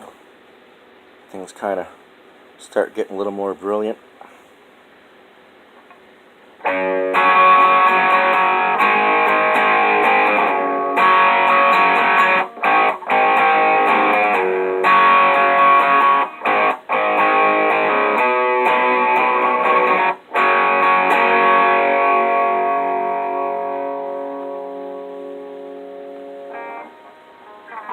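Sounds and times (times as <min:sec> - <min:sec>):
bright electric guitar: 0:06.6 - 0:27.9.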